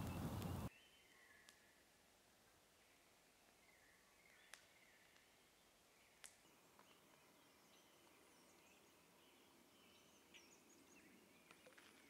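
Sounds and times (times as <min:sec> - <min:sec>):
faint bird chirps: 0:00.0 - 0:12.0
faint click: 0:04.3 - 0:05.3, 0:06.2 - 0:07.0.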